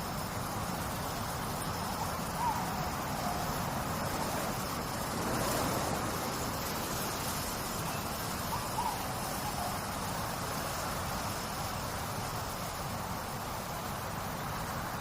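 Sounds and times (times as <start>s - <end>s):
trickling water: 0.0s - 15.0s.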